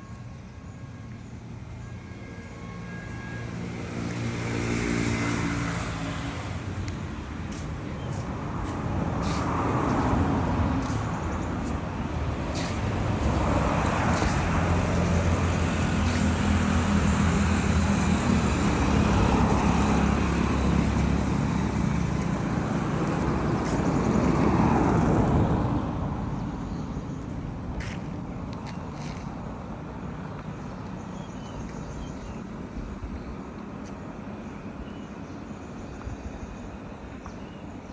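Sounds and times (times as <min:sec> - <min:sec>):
heavy vehicle engine: 0:00.0 - 0:30.2
vehicles passing: 0:00.0 - 0:37.9.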